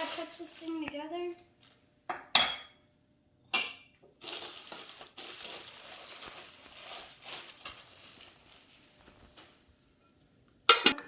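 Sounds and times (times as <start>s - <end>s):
packaging crinkling and rustling: 0.0s - 1.8s, 4.2s - 9.9s.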